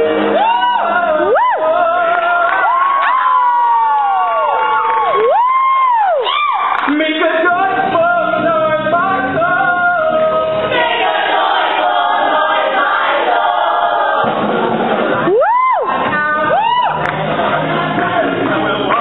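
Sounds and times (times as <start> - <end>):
chorus singing gospel-style: 0.0 - 3.5, 7.2 - 15.2.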